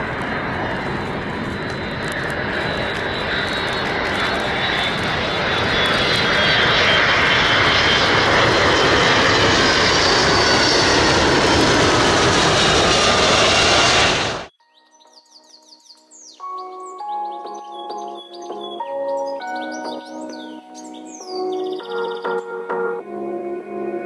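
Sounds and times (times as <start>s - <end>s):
jet aircraft passing: 0.0s - 14.5s.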